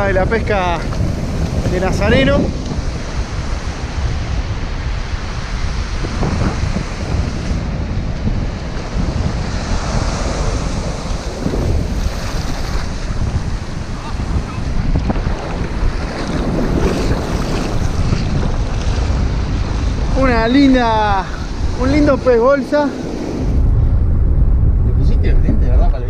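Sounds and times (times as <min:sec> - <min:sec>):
surf washing over sand: 0:00.0 - 0:23.9
deep rumble: 0:00.0 - 0:26.0
wind buffeting microphone: 0:00.0 - 0:26.0.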